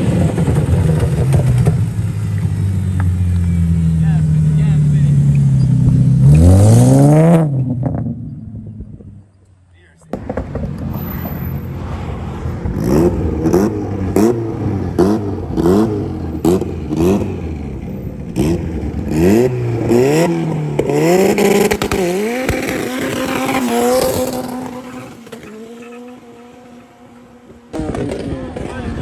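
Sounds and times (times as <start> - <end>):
car engine revving: 0.0 - 9.1, 10.1 - 29.0.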